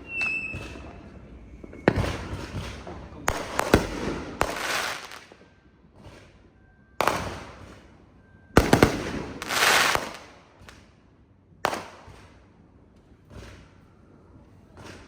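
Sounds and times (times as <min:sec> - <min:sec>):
firework bangs: 0:00.0 - 0:06.2, 0:07.0 - 0:07.9, 0:08.6 - 0:10.9, 0:11.7 - 0:12.4
firework crackling: 0:01.8 - 0:05.4, 0:08.6 - 0:10.8.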